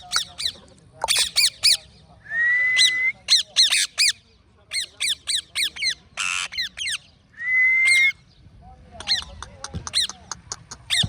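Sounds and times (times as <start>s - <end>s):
parrot squawking: 0.0s - 1.9s, 2.8s - 7.1s, 9.0s - 11.0s.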